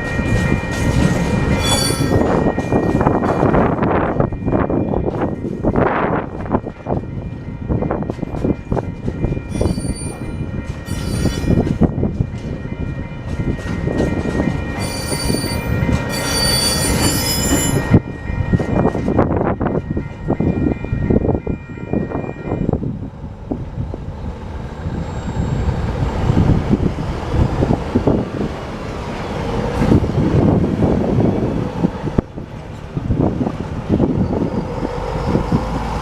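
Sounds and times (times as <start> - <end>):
train wagons rumbling on rails: 0.0 - 36.0
high-pitched wheel squeal: 1.5 - 2.5, 10.9 - 11.6, 14.8 - 18.0, 34.1 - 35.8.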